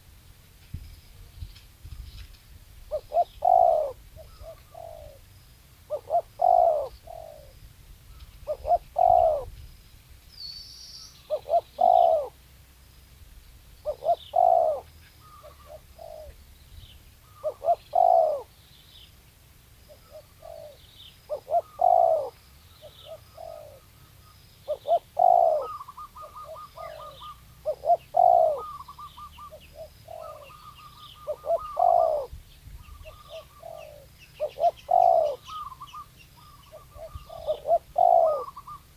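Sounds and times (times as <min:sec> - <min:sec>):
small bird chirping: 0:00.7 - 0:38.9
dove cooing: 0:02.9 - 0:05.3, 0:05.9 - 0:07.6, 0:08.4 - 0:09.6, 0:11.3 - 0:12.4, 0:13.8 - 0:16.5, 0:17.2 - 0:18.6, 0:19.9 - 0:38.9.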